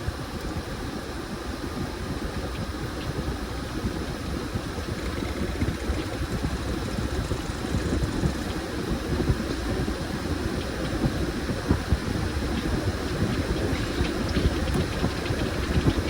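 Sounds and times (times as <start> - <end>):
washing machine drum churning: 3.8 - 16.0.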